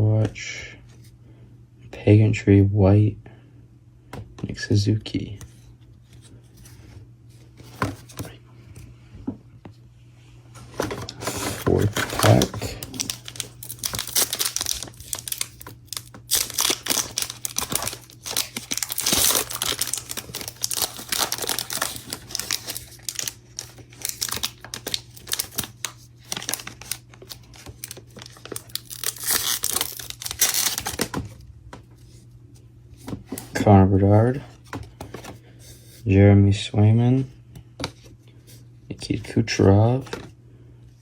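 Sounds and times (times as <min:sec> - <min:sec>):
card pack wrapper tearing: 0:11.0 - 0:31.3.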